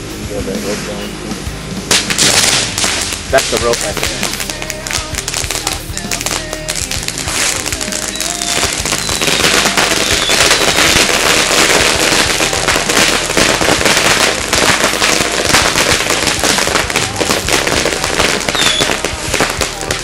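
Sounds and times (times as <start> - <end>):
firecrackers barrage: 0.0 - 20.0
faint short whistles: 9.0 - 9.4.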